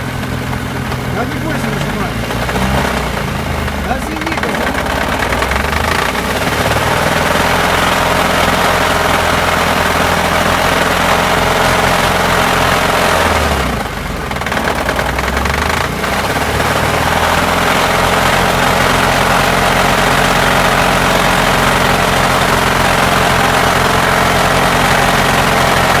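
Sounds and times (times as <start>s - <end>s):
car engine running with knock: 0.0s - 26.0s.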